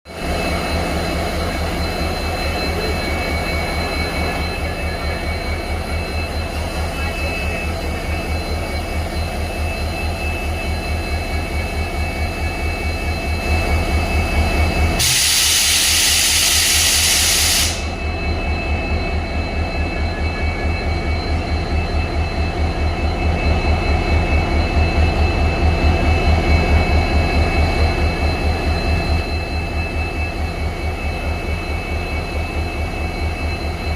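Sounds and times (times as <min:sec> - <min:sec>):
loud hiss: 0:15.0 - 0:17.8.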